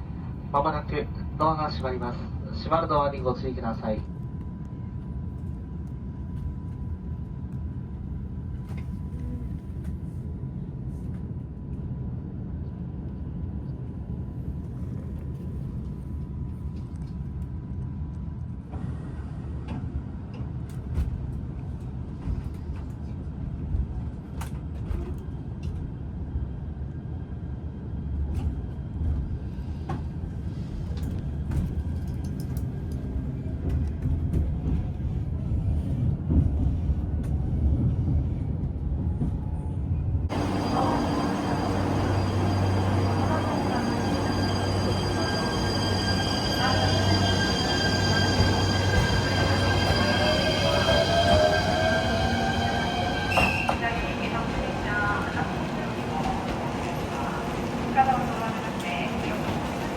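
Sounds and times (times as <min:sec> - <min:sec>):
train cabin rumble: 0:28.2 - 0:59.9.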